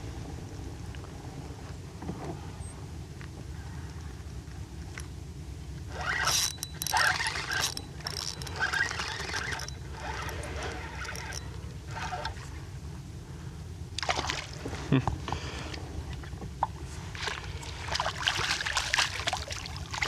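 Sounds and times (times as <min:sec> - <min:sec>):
fishing reel whirring: 0:05.9 - 0:12.6.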